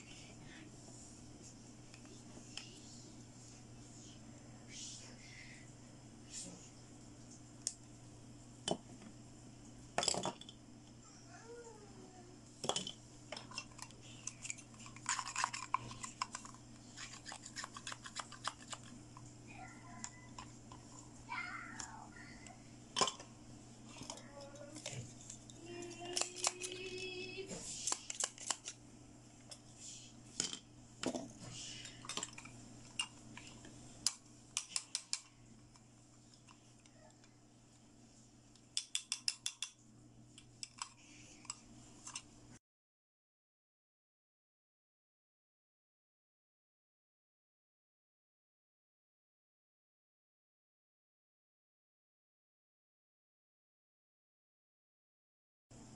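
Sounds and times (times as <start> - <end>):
plastic toy pieces clattering: 12.7 - 18.9, 25.9 - 27.1.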